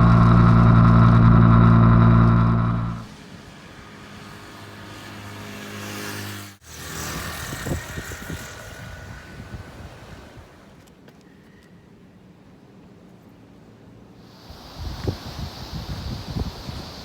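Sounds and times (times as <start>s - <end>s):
motorcycle engine running: 0.0s - 3.1s.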